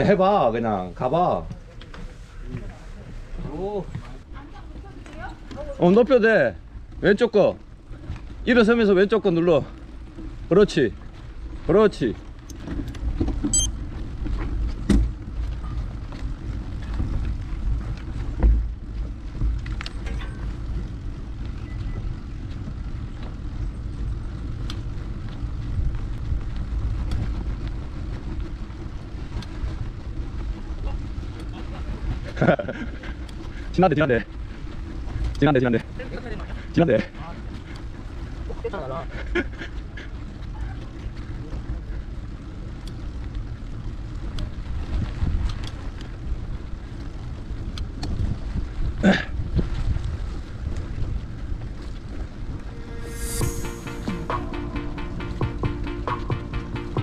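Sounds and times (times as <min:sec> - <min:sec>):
wind rumble on microphone: 0:00.0 - 0:53.6
bike rolling on dirt trail: 0:00.0 - 0:53.8
loud sharp sound: 0:52.6 - 0:57.0.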